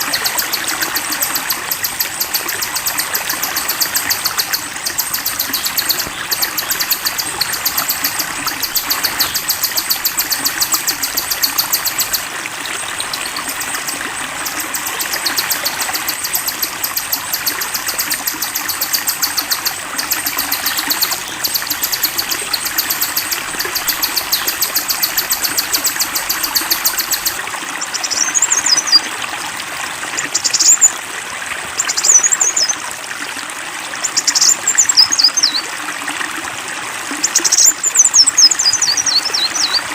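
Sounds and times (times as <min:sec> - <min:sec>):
bird buzzing trill: 0:00.0 - 0:12.3, 0:13.0 - 0:27.4
stream flowing: 0:00.0 - 0:39.9.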